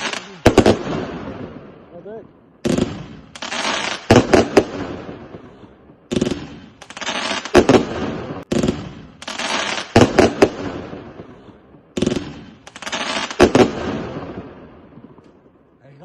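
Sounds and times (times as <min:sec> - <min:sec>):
firework shots launching: 0:00.0 - 0:01.7, 0:02.6 - 0:15.4
loud firework bangs echoing: 0:00.0 - 0:15.8.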